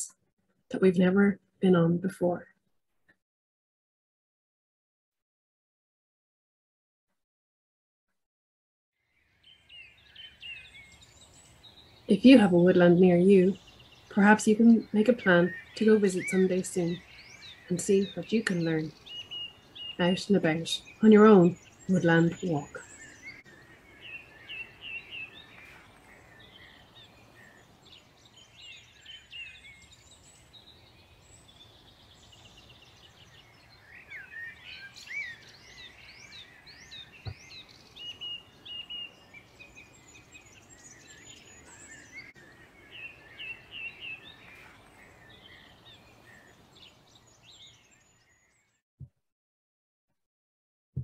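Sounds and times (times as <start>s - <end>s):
birds singing and calling: 9.1s - 48.8s.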